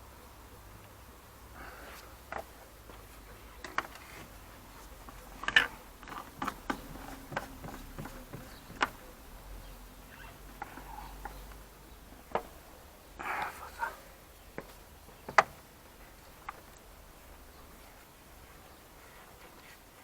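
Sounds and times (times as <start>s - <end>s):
hand tools clicking and knocking: 2.2s - 12.6s, 13.2s - 16.9s.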